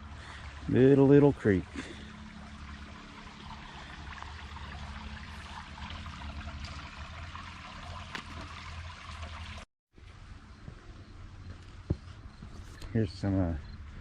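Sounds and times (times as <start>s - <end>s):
creek trickling: 0.0s - 9.7s.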